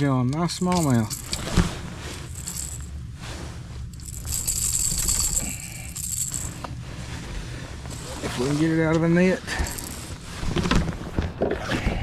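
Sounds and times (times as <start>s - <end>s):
fishing lure and hooks jingling: 0.4s - 3.1s, 3.8s - 6.8s, 7.9s - 8.6s, 9.4s - 10.2s.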